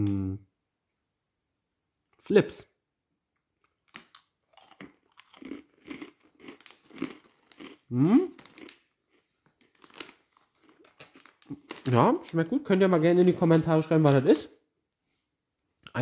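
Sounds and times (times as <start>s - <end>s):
person humming: 0.0s - 0.4s, 7.9s - 8.4s
person chewing crunchy snacks: 3.6s - 12.2s.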